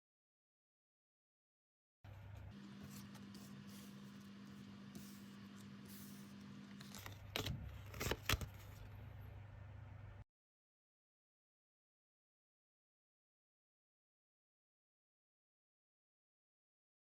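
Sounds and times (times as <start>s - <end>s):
low electrical hum: 2.1s - 10.2s.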